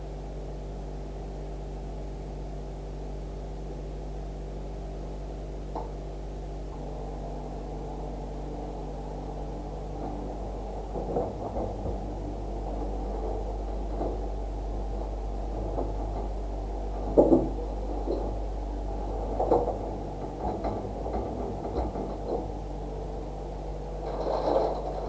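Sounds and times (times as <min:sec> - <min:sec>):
low electrical hum: 0:00.0 - 0:25.0
dull knocks: 0:17.0 - 0:18.4.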